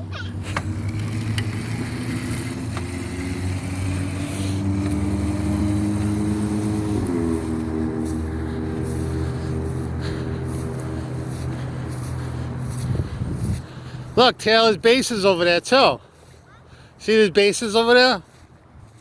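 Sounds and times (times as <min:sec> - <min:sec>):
electric dirt bike motor whining: 0:00.2 - 0:14.2.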